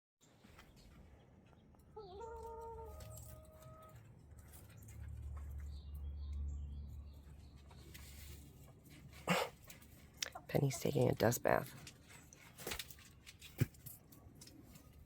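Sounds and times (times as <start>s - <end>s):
chicken call: 2.0s - 4.0s.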